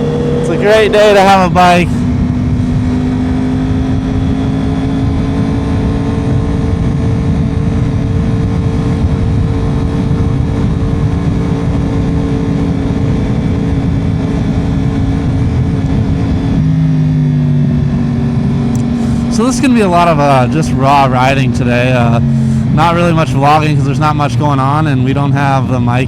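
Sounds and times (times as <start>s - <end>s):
motorcycle engine cruising: 0.0s - 26.0s
wind noise on microphone: 1.4s - 19.3s.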